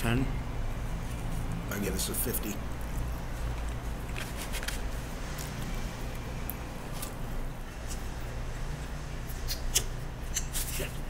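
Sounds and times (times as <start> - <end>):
steady low hum: 0.0 - 11.0
wet mouth clicks: 9.4 - 10.8.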